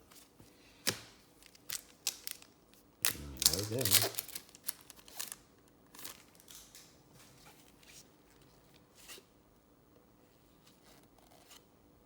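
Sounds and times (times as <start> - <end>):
trading cards rustling: 3.1 - 6.9.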